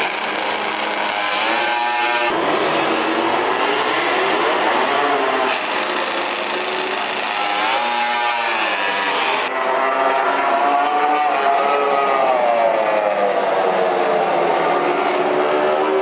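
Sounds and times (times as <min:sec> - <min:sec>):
racing motorcycle engine revving: 0:00.0 - 0:10.2.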